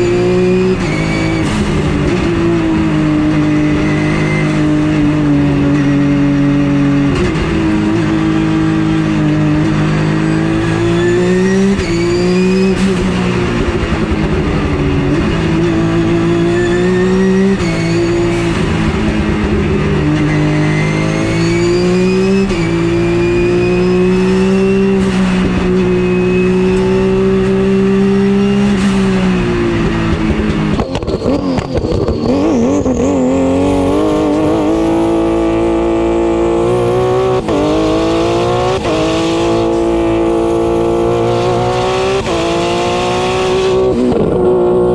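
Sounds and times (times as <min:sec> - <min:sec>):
race car engine accelerating: 0:00.0 - 0:44.9
high whine: 0:10.1 - 0:44.5.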